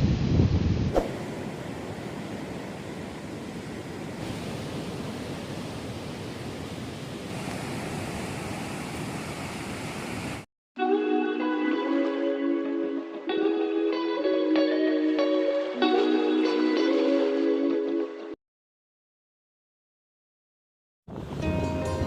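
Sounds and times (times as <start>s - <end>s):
strong wind: 0.0s - 10.5s, 21.1s - 22.0s
surf on a beach: 0.0s - 10.5s, 21.1s - 22.0s.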